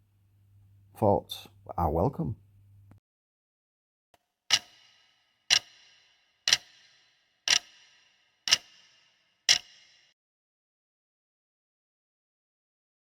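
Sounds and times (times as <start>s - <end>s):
clock-like ticking: 4.5s - 10.2s.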